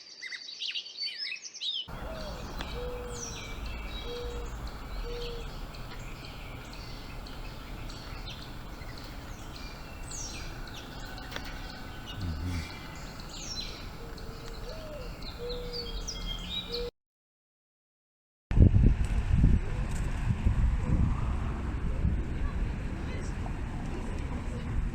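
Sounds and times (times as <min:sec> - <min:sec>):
birds chirping and calling: 0:01.1 - 0:16.9
low held bird call: 0:01.9 - 0:16.9
steady background hiss: 0:01.9 - 0:16.9.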